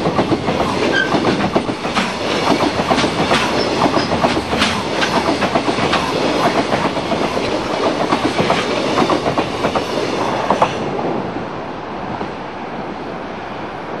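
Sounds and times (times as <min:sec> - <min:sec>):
train wheels clattering over rail joints: 0:00.0 - 0:10.9.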